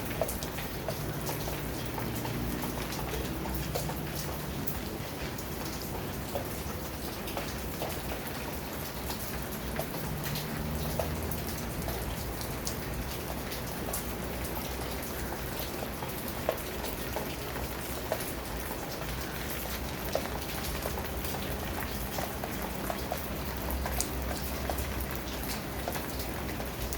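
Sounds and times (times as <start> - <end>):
rain falling: 0.0 - 26.9
raindrops tapping on surfaces: 0.0 - 26.9.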